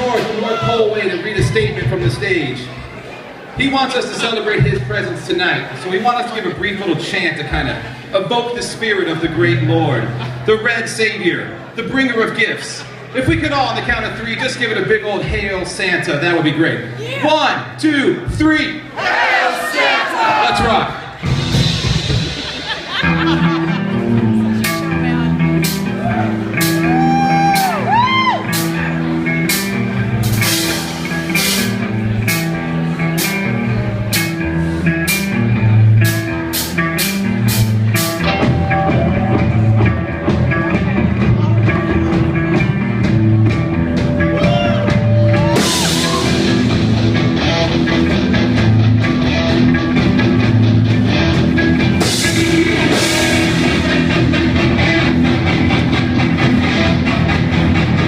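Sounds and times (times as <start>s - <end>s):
bass guitar: 0.0s - 19.3s, 20.2s - 58.0s
drum and cymbal hits: 20.6s - 23.9s, 25.6s - 32.6s, 35.1s - 58.0s
electric guitar with bent notes: 21.1s - 58.0s.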